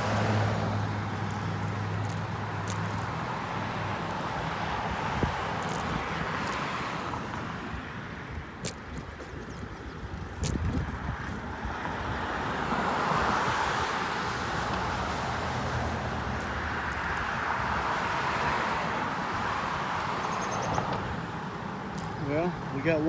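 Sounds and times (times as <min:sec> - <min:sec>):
rushing road noise: 0:00.0 - 0:23.0
wind on microphone: 0:04.6 - 0:14.4.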